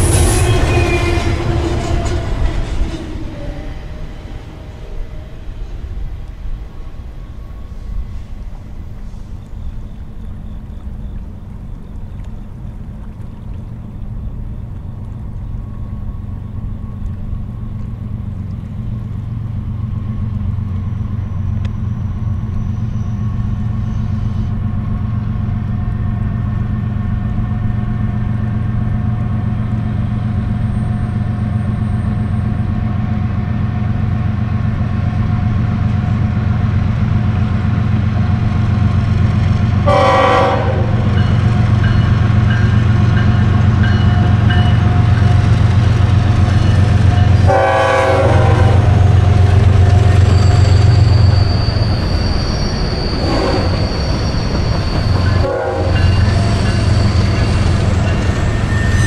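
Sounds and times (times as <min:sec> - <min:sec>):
diesel locomotive engine rumble: 0:00.0 - 0:59.0
locomotive horn tones: 0:39.8 - 0:46.0, 0:46.7 - 0:51.6, 0:53.2 - 0:53.9, 0:55.0 - 0:57.8.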